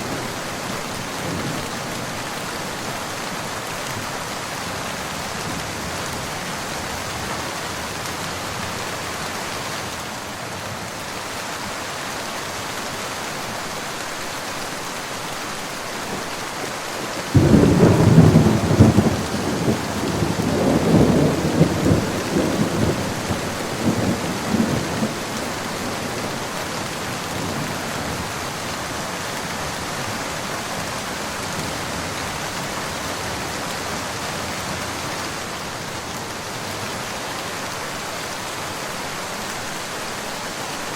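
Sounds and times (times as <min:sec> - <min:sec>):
rain hissing: 0:12.6 - 0:40.9
thunder rumbling: 0:17.3 - 0:26.5.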